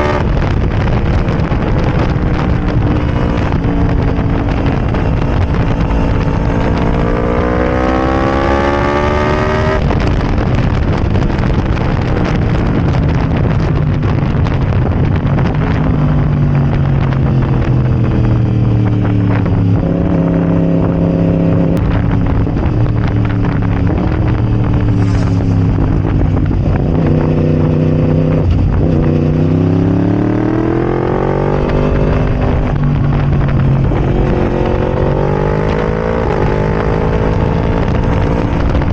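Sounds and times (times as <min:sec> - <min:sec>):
loud motorcycle engine revving: 0:00.0 - 0:12.4, 0:22.6 - 0:38.9.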